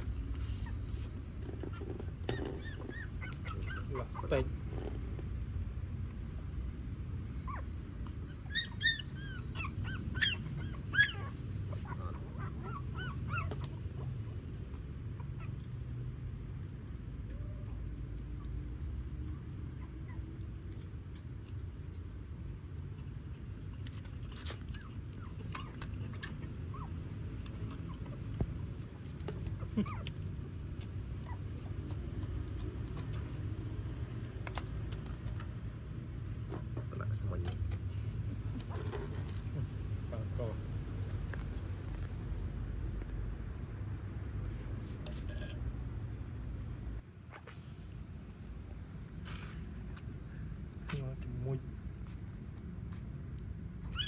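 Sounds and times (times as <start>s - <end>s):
puppies whimpering and squealing: 0.0s - 5.2s, 7.4s - 15.7s, 24.0s - 28.5s, 29.4s - 30.4s, 53.8s - 54.0s.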